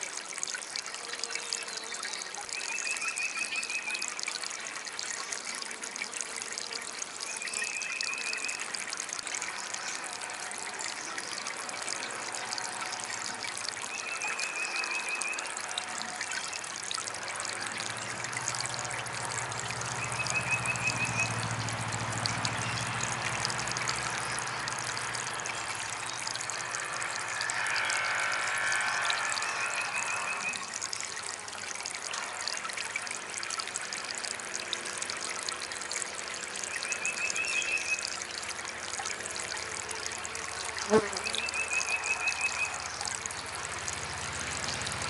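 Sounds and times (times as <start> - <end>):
water trickling and splashing: 0.0 - 45.0
low hum: 17.5 - 37.3.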